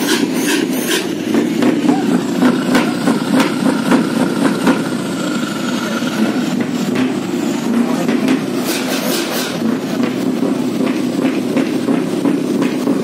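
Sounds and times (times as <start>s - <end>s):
truck engines running: 0.0s - 13.0s
people's voices: 1.6s - 3.3s, 5.1s - 8.5s.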